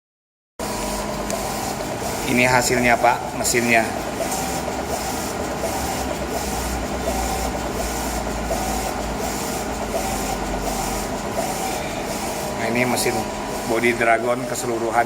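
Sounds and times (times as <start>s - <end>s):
printer low hum: 0.6s - 15.0s
print-head carriage sweeping: 0.8s - 15.0s.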